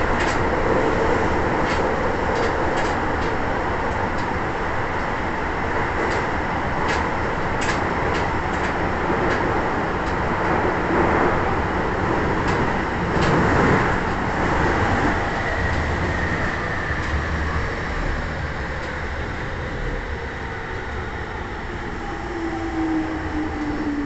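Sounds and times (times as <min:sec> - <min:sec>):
wheels rumbling on rail: 0:00.0 - 0:24.0.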